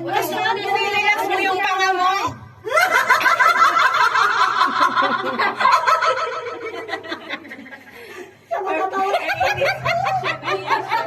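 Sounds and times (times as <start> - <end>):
women laughing and giggling: 2.6 - 11.0.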